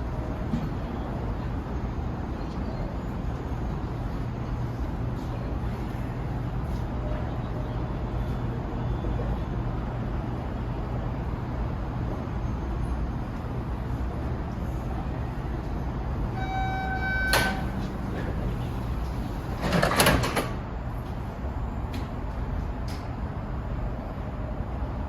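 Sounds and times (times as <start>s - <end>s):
train rumble and hum: 0.0s - 25.0s
electronic chime tone: 16.4s - 17.6s.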